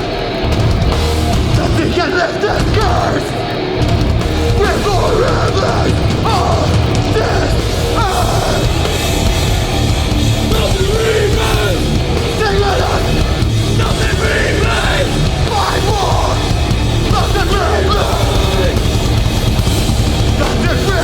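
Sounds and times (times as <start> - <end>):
bass guitar: 0.0 - 21.0
distorted guitars: 0.0 - 21.0
drums: 0.0 - 21.0
shouted vocals: 1.4 - 3.6, 4.5 - 9.5, 10.3 - 19.2, 20.3 - 21.0.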